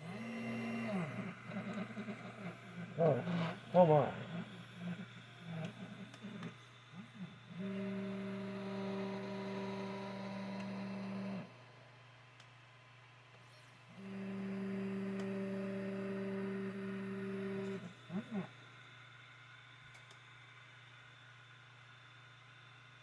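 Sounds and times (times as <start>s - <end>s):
stepper motor buzzing whine: 0.0s - 11.8s, 13.6s - 18.8s
low electrical hum: 0.0s - 23.0s.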